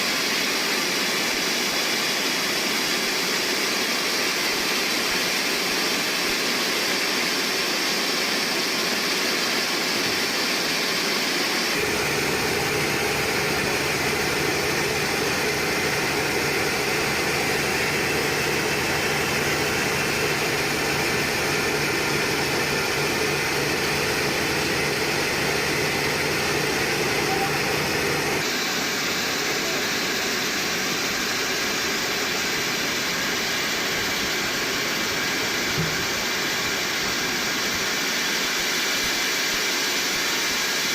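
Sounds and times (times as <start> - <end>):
sawmill machinery drone: 0.0 - 40.9
low engine-like hum: 11.8 - 28.4.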